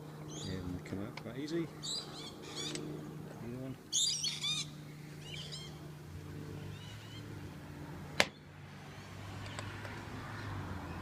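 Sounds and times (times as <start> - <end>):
steady low hum: 0.0 - 11.0
faint bird chirps: 3.9 - 5.8.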